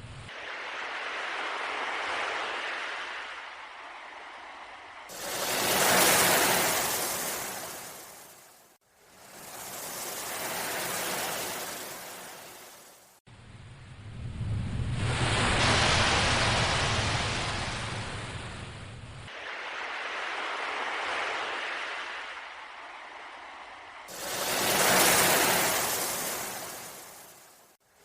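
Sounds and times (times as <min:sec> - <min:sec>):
ocean surf hissing: 0:00.3 - 0:13.1, 0:19.3 - 0:27.8.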